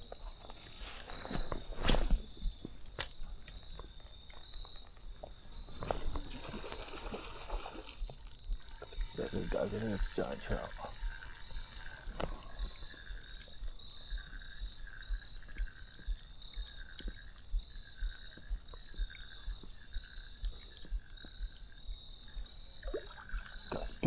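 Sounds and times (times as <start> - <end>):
fishing reel whirring: 0.4 - 3.1, 5.6 - 23.8
steady high whine: 5.7 - 20.6.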